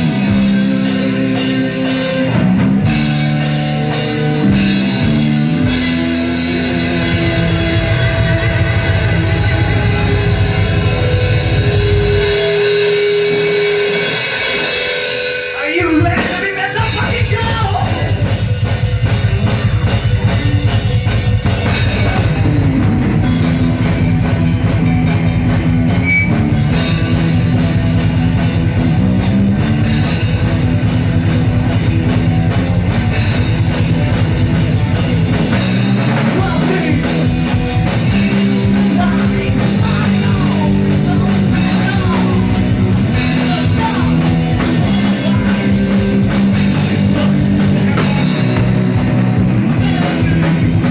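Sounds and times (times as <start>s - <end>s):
bass guitar: 0.0s - 50.9s
drum kit: 0.0s - 50.9s
electric guitars: 0.0s - 50.9s
person singing: 36.3s - 37.3s, 38.6s - 46.1s.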